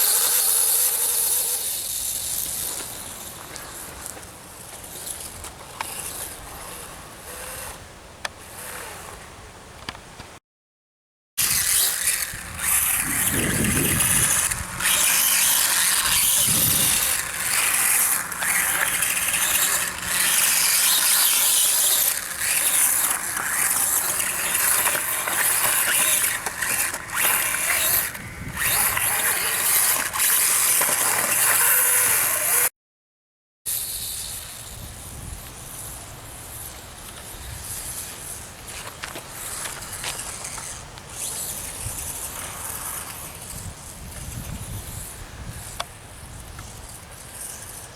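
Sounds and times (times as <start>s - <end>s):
electric motor whining: 0.0s - 7.8s, 11.4s - 32.7s.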